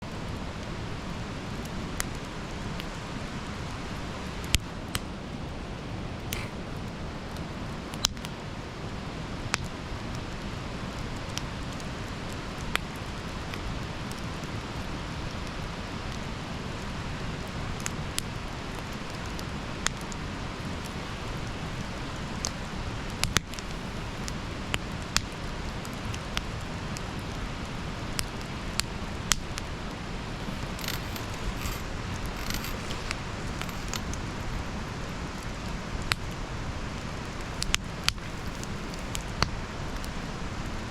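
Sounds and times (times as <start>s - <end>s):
burning wood crackling and popping: 0.1s - 40.9s
hiss of flames: 20.8s - 40.9s.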